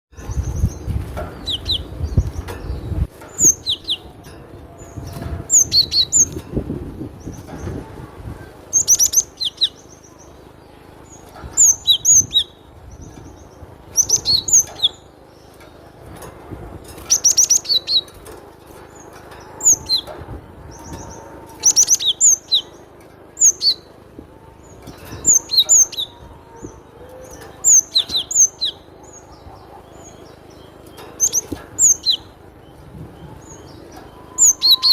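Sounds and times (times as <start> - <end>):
bird singing high clear notes: 19.0 - 34.9.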